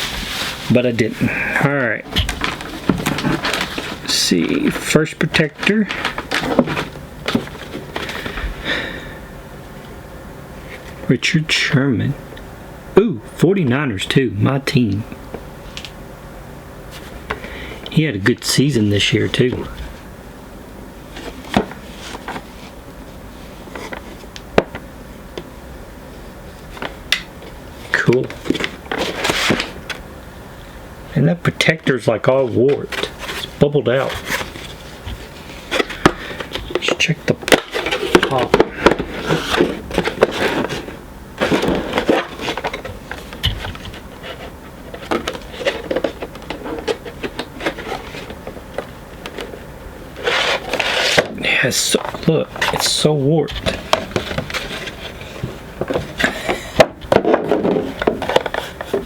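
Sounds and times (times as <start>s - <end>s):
plastic and cardboard rubbing: 2.0s - 8.4s, 27.9s - 30.0s, 32.4s - 59.0s.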